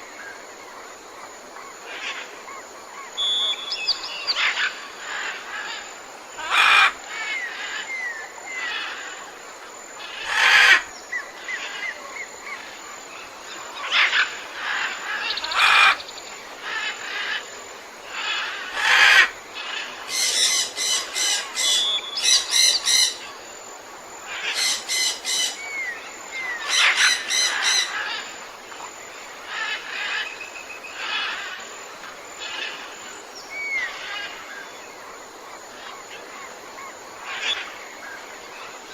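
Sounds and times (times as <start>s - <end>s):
steady background hiss: 0.0s - 38.9s
harsh bird calls: 3.0s - 5.8s.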